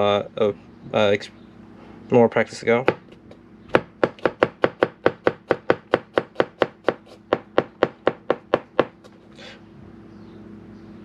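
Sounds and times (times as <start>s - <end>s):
knife chopping on cutting board: 2.8s - 9.0s.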